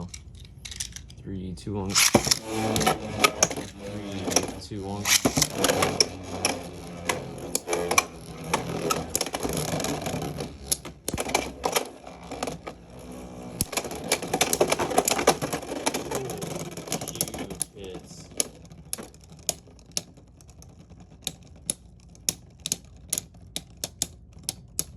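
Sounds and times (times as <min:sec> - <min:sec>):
spinning tops clattering: 0:01.9 - 0:24.9.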